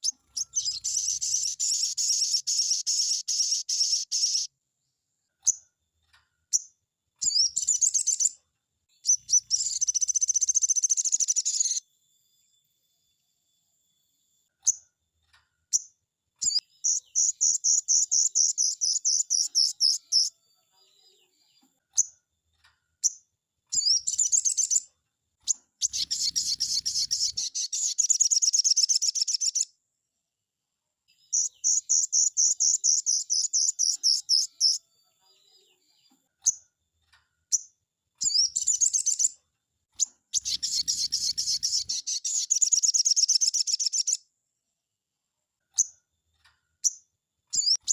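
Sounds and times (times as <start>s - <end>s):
bird sharp chips: 0.0s - 4.5s, 25.5s - 29.6s, 40.0s - 44.2s
bird trilling song: 0.0s - 4.5s, 6.5s - 11.8s, 15.7s - 20.4s, 23.0s - 29.7s, 31.2s - 34.8s, 37.5s - 39.4s, 40.0s - 44.2s, 46.8s - 47.9s.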